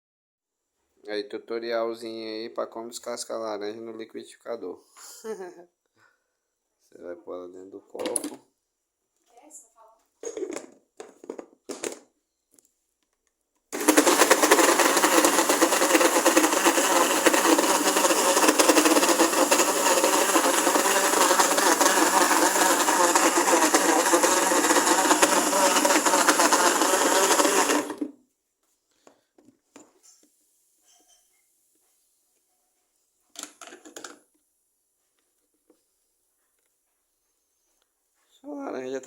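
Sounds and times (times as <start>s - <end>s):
blender running: 13.8s - 28.1s.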